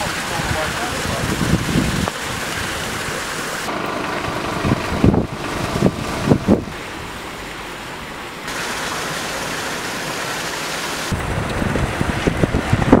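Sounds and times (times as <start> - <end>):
rain and running water: 0.0 - 13.0
low gusty rumbling: 0.4 - 8.2, 11.1 - 13.0.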